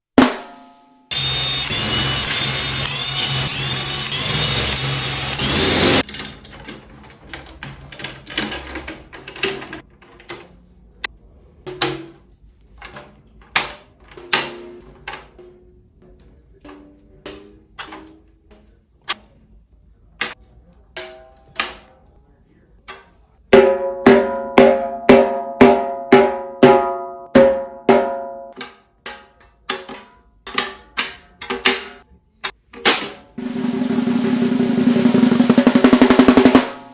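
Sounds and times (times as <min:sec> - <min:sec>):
snare drum roll: 0:00.2 - 0:00.7, 0:05.4 - 0:06.0, 0:23.6 - 0:28.3, 0:33.4 - 0:36.9
snare drum strokes: 0:00.2 - 0:03.5, 0:04.3 - 0:06.0, 0:23.6 - 0:28.3, 0:32.9 - 0:36.9.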